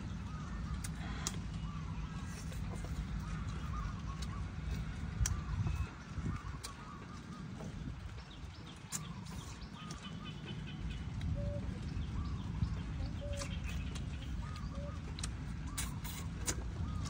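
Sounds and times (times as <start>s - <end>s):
steady low rumble: 0.0s - 17.0s
person chewing food: 13.4s - 17.0s.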